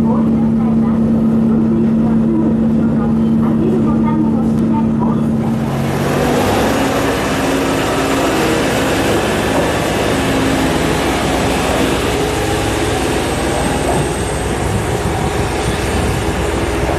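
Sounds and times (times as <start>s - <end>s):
diesel railcar rumbling: 0.0s - 16.9s.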